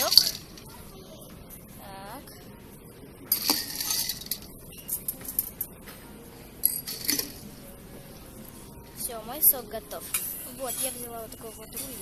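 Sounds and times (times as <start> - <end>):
ice cubes clinking in glass: 3.4 - 4.4.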